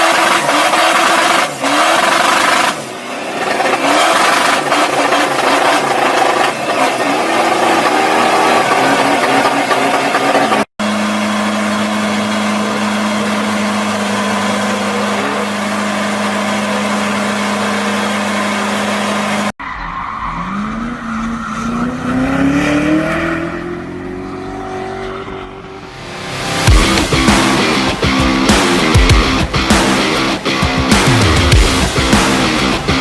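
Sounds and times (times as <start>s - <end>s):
sports car engine high-revving: 0.0s - 19.6s, 20.3s - 33.0s
car accelerating: 0.0s - 33.0s.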